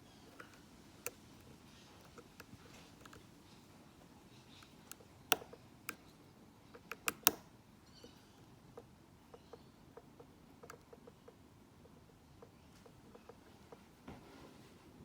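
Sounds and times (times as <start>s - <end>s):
lock pick clicking in padlock: 4.6s - 6.0s, 6.8s - 7.5s.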